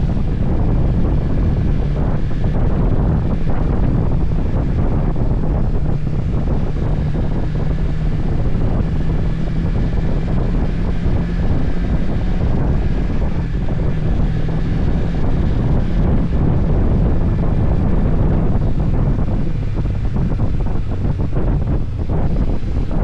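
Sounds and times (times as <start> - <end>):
motorcycle engine running: 0.0 - 23.0
wind buffeting microphone: 0.0 - 23.0.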